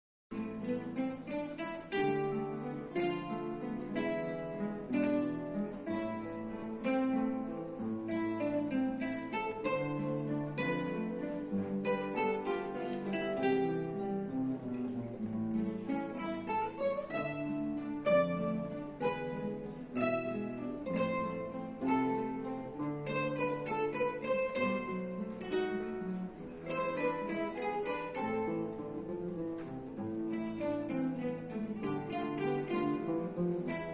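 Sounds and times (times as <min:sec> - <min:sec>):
acoustic guitars playing: 0:00.3 - 0:33.9.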